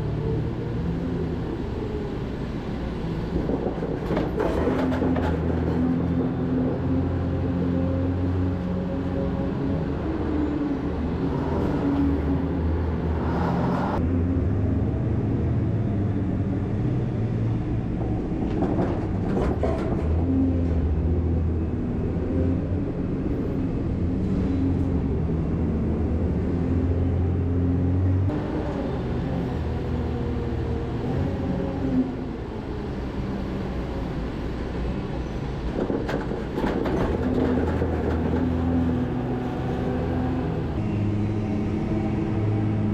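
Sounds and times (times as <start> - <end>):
heavy vehicle engine humming: 0.0 - 42.9.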